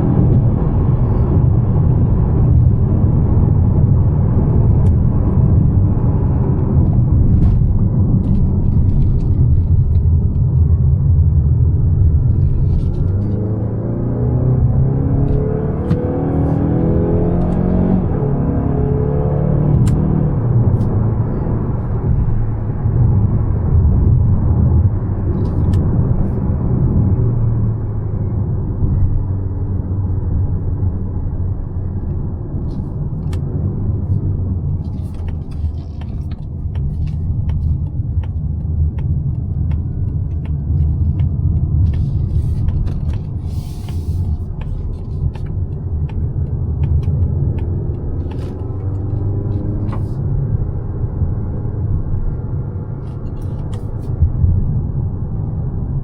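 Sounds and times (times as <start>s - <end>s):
car engine and tyres rumbling: 0.0s - 56.0s
light clicks and taps: 34.8s - 50.0s.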